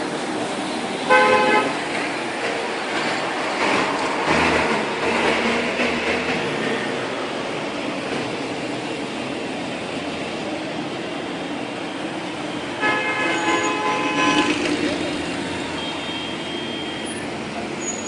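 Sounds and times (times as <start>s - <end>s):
road traffic passing: 0.0s - 18.0s
vehicle horn: 1.1s - 1.8s, 12.7s - 14.7s, 15.4s - 17.2s.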